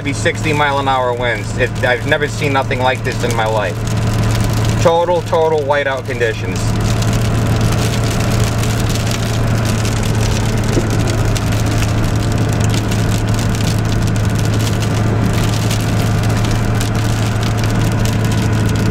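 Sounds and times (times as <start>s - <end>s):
continuous crackling: 0.0s - 18.9s
car cabin drone: 6.4s - 18.9s.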